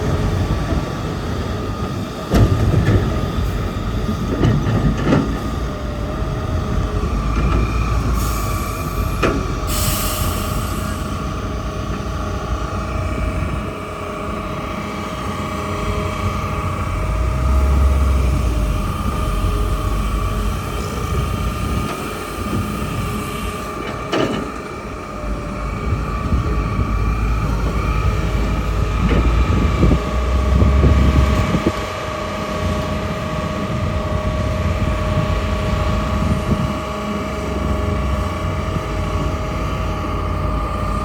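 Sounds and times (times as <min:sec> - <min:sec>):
excavator diesel engine: 0:00.0 - 0:41.0
hydraulic whine: 0:00.1 - 0:31.9.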